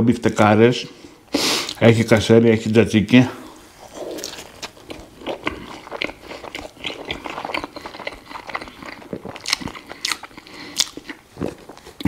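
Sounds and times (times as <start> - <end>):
person chewing a burger: 3.5 - 12.0.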